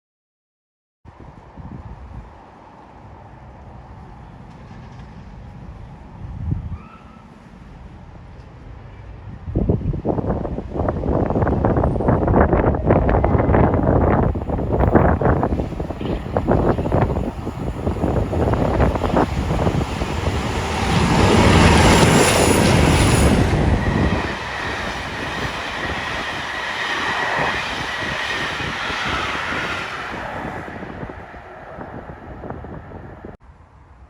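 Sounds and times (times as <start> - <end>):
diesel train passing: 1.9 - 33.4.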